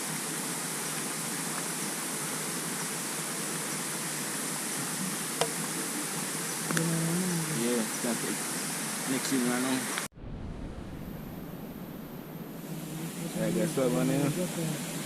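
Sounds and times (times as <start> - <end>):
waterfall rushing: 7.4 - 10.1.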